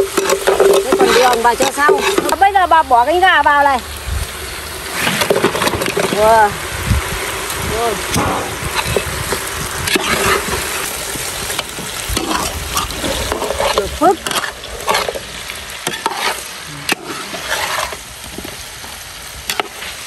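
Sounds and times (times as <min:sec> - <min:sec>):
metal spatula scraping a wok: 0:00.0 - 0:02.6, 0:04.8 - 0:06.2, 0:08.0 - 0:18.6
chicken wings sizzling in oil: 0:00.0 - 0:20.0.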